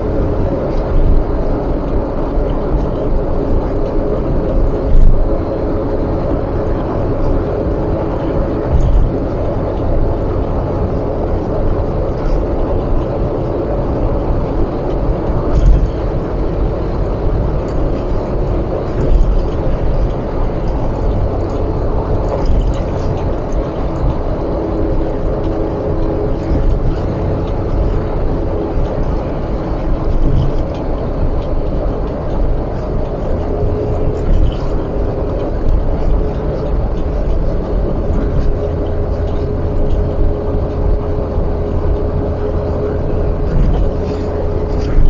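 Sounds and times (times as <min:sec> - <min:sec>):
car road and engine noise: 0:00.0 - 0:45.0
light road bumps: 0:14.6 - 0:45.0.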